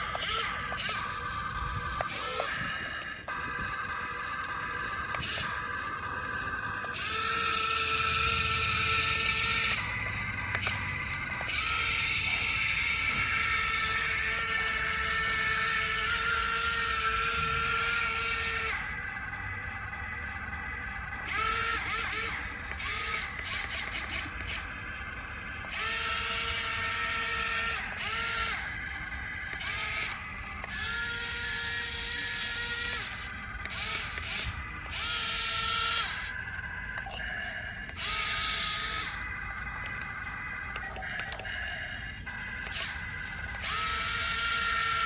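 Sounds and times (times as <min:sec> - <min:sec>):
small electric motors whining: 0:00.0 - 0:45.0.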